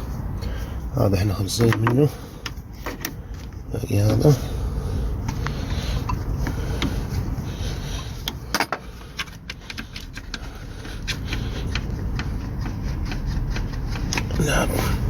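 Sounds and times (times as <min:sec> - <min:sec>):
hand tools clicking on metal: 0:08.2 - 0:14.7.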